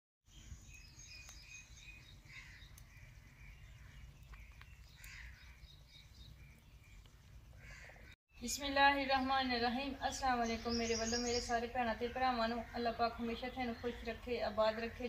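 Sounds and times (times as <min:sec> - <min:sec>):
faint bird chirps: 0:00.3 - 0:08.6, 0:09.2 - 0:11.7
harsh bird calls: 0:00.3 - 0:15.0.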